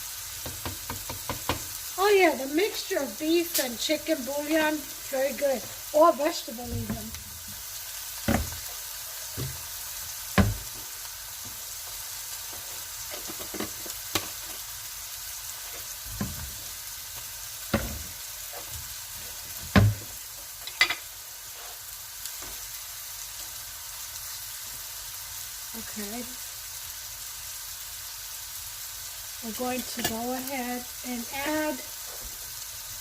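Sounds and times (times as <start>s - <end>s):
meat sizzling in a pan: 0.0s - 33.0s
utensils knocking against pan: 0.4s - 1.7s.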